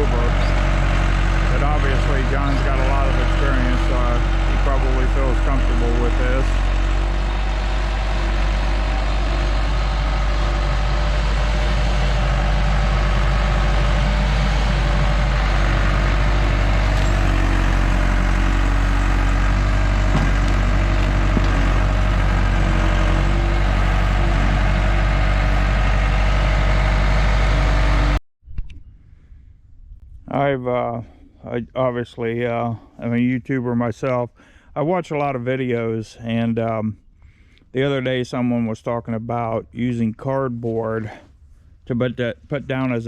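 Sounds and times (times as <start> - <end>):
heavy equipment engine humming: 0.0 - 28.2.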